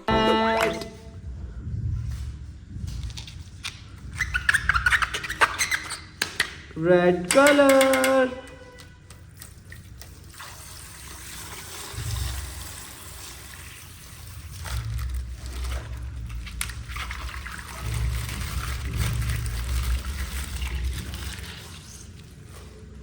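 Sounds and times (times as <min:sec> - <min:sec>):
water trickling from plastic bag: 0:09.0 - 0:23.0.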